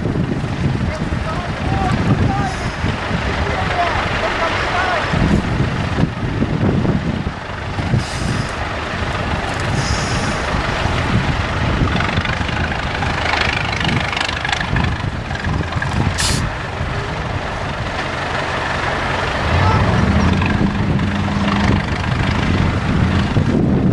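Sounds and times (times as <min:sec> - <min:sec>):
diesel truck engine rumbling: 0:00.0 - 0:23.9
sharp hiss of air: 0:16.2 - 0:16.5.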